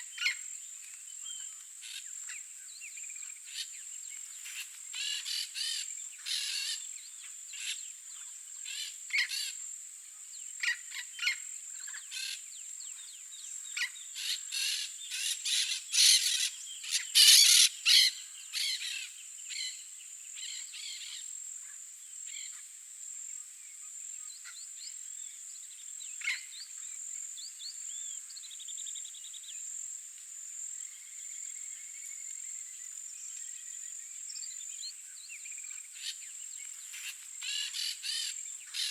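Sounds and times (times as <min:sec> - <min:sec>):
parrots squawking: 0:17.2 - 0:18.8.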